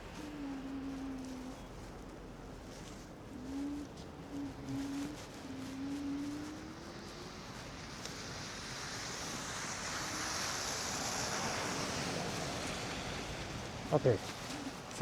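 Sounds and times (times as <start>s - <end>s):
tyres rolling on snow: 7.0s - 15.0s.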